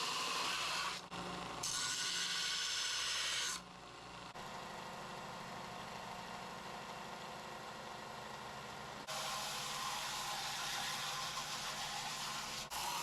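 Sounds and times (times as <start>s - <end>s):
power sander grinding steel: 9.1s - 13.0s.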